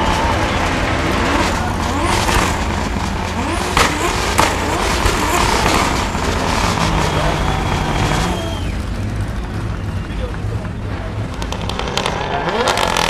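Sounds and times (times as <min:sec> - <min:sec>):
sharp cracks: 0:00.0 - 0:09.3
car engine revving: 0:00.0 - 0:13.0
tyre noise: 0:00.0 - 0:13.0.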